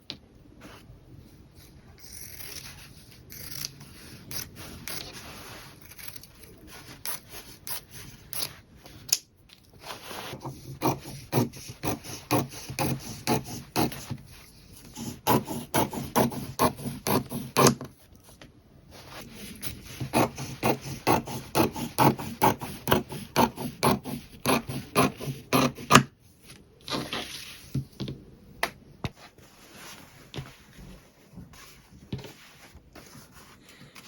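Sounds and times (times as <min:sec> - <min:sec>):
fabric rubbing and scraping: 0:18.9 - 0:20.0, 0:26.4 - 0:27.8, 0:29.1 - 0:33.7.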